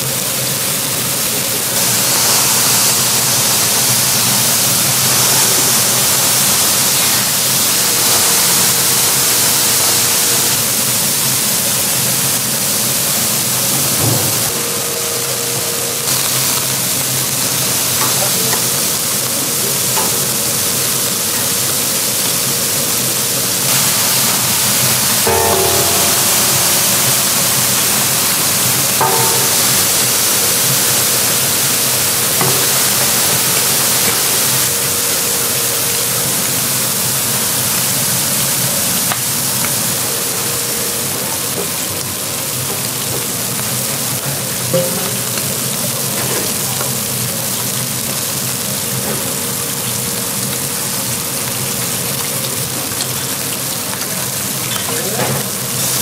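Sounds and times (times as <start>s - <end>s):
food sizzling in hot fat: 0.0s - 56.0s.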